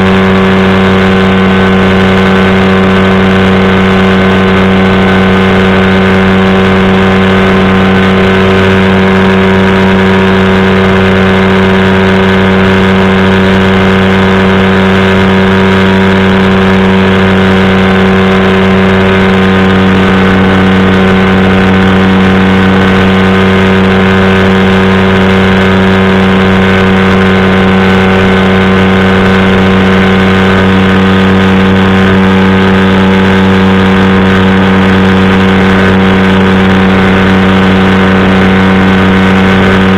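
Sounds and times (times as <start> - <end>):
engine and propeller running: 0.0 - 39.9.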